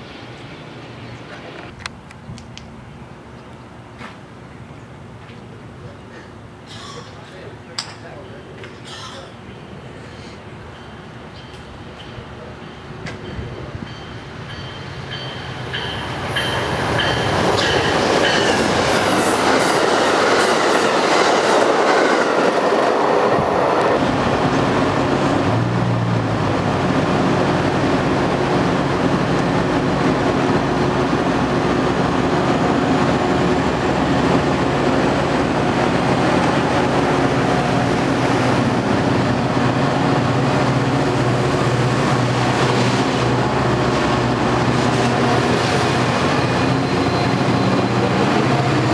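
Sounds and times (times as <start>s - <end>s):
wheels clattering on rails: 10.6s - 25.2s
wheels squealing: 45.2s - 48.9s.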